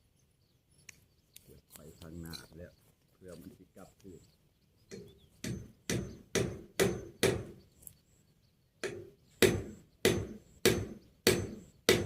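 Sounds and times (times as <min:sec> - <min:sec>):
hammer driving nail into wood: 0:04.9 - 0:07.6, 0:08.8 - 0:12.0.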